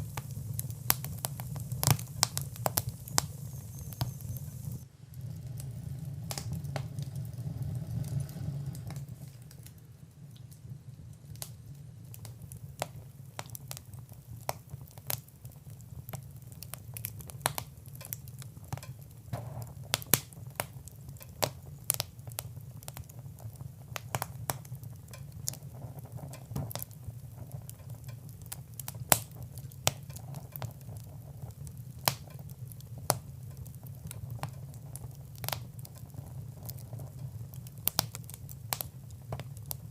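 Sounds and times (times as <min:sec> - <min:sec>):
low steady rumble: 0:00.0 - 0:09.5
wood fire crackling: 0:00.0 - 0:39.9.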